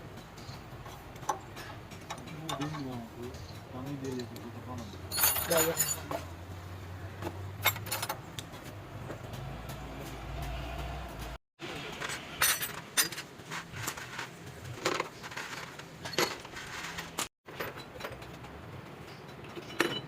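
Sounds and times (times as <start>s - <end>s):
metal tools clinking on metal: 0.1s - 6.4s, 7.5s - 8.4s, 12.0s - 14.0s, 14.8s - 20.0s.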